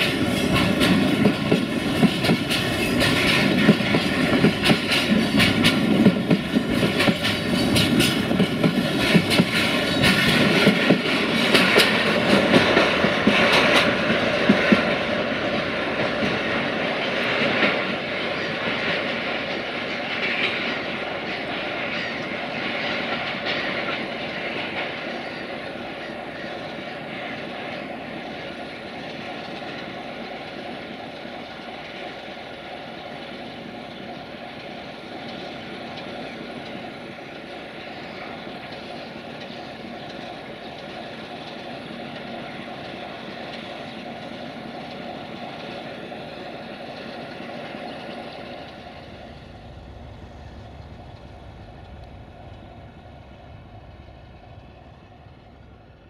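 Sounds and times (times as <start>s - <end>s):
distant diesel locomotive drone: 0.0s - 56.0s
train wagons rolling on track: 0.0s - 56.0s.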